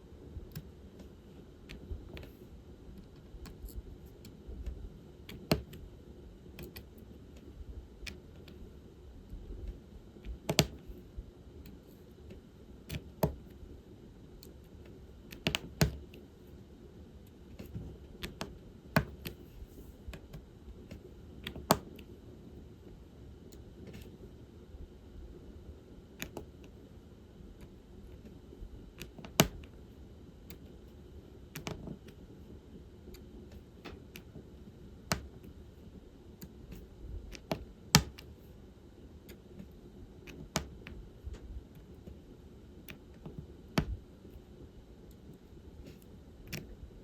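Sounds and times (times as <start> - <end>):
drill pen clicking and tapping: 15.3 - 16.1, 17.6 - 19.4, 35.1 - 35.5, 36.4 - 38.3, 40.3 - 41.0.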